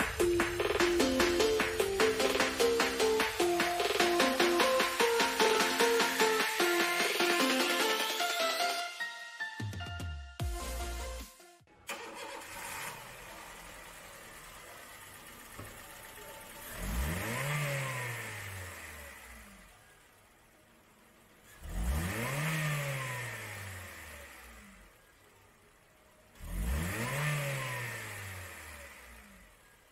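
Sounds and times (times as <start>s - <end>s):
car engine revving from idle: 11.9s - 29.9s.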